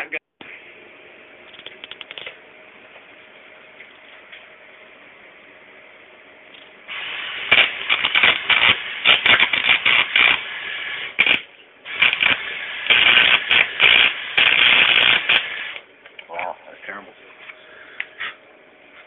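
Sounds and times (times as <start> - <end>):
arc welding crackling sizzle: 6.5 - 16.3.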